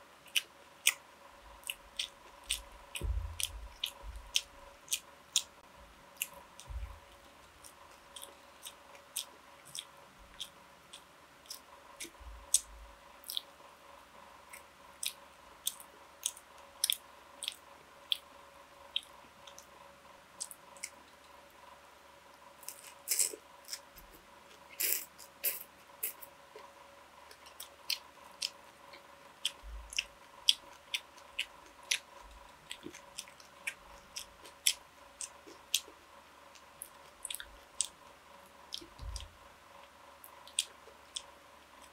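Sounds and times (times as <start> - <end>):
person chewing food: 0.2 - 1.0, 1.6 - 5.6, 6.2 - 13.6, 14.5 - 18.3, 20.4 - 21.4, 22.6 - 41.9.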